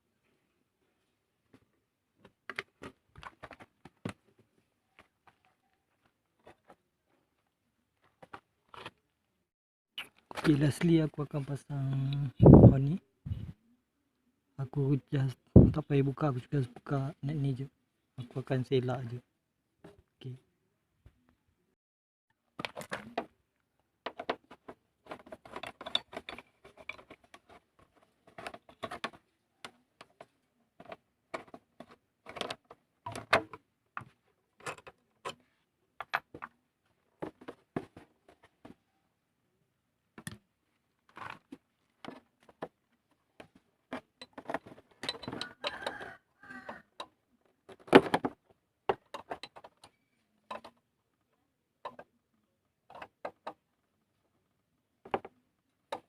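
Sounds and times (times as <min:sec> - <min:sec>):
metal parts and tools handled: 0:24.1 - 0:29.3, 0:30.1 - 0:36.5, 0:43.9 - 0:46.0, 0:48.9 - 0:50.8.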